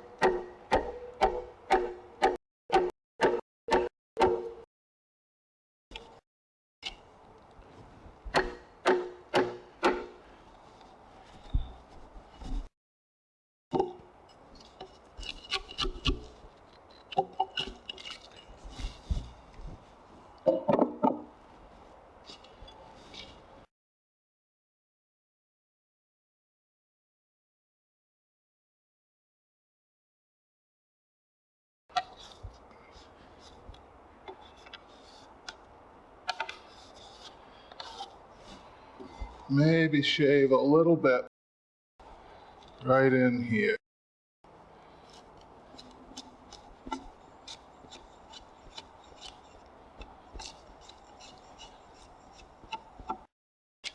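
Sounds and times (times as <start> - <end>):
chisel scraping and knocking wood: 8.3 - 12.7, 13.8 - 19.8, 36.3 - 39.4, 45.0 - 53.9.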